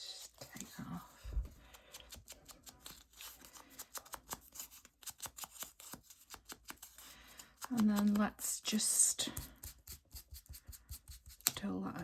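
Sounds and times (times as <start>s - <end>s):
paper crackling: 0.3s - 8.4s.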